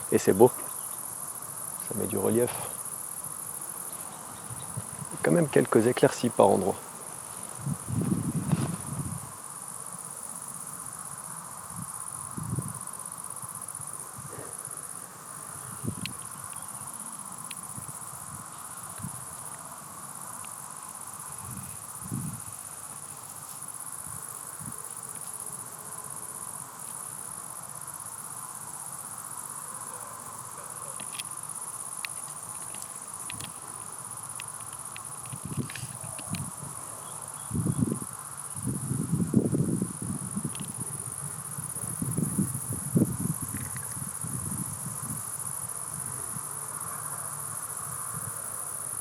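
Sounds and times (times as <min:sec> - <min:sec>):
high-pitched insect chirring: 0:00.0 - 0:49.0
faint ticks: 0:15.8 - 0:22.0, 0:30.8 - 0:37.2, 0:43.4 - 0:44.1.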